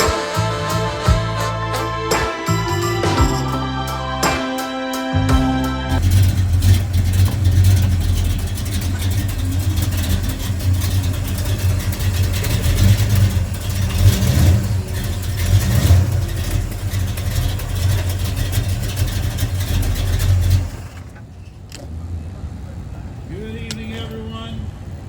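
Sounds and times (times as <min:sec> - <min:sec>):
car engine rumbling: 0:05.2 - 0:25.0.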